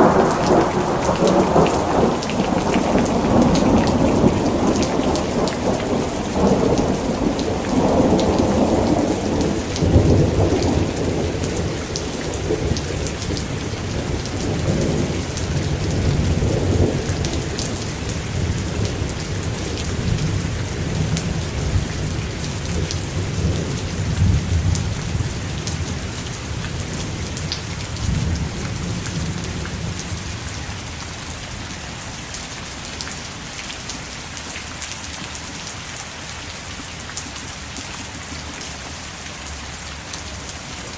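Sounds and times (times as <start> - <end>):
thunder rolling: 0.0 - 30.2
steady rain: 0.0 - 40.9.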